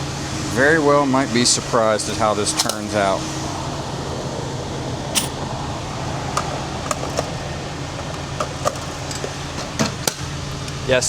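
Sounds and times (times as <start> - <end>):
low mechanical hum: 0.0 - 11.0
sharp metallic click: 2.6 - 2.8, 5.2 - 5.4.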